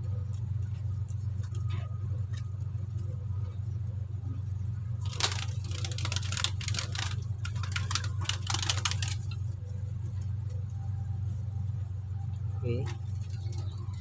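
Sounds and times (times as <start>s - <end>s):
steady low hum: 0.0s - 14.0s
fishing line crackling and rustling: 5.0s - 9.4s.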